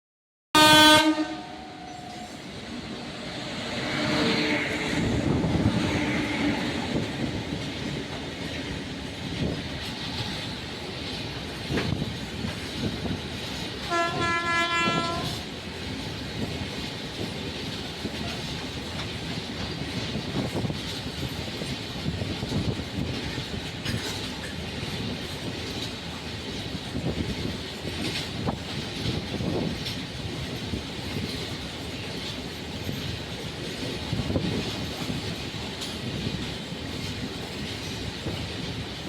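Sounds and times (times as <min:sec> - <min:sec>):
locomotive horn blast: 0:00.6 - 0:02.4, 0:13.9 - 0:15.5
train wheels clacking over rail joints: 0:03.7 - 0:39.0.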